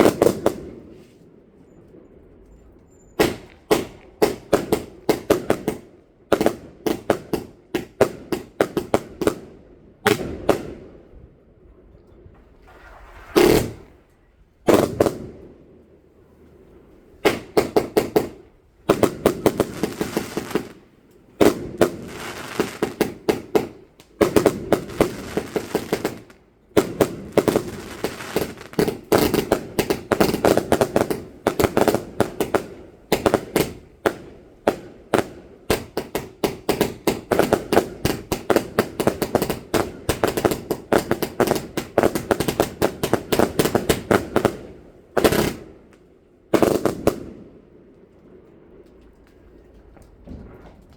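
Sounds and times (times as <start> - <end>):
fireworks crackling: 0.0 - 11.1, 12.4 - 50.9
firework bang: 12.3 - 15.6.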